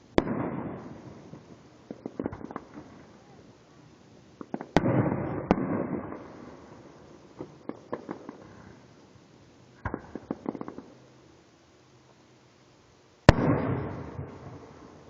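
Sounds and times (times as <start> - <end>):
fireworks cracking and popping: 0.0 - 3.6, 4.4 - 9.0, 9.8 - 11.1, 13.2 - 15.0
rumbling firework echo: 0.0 - 11.1, 13.2 - 15.0.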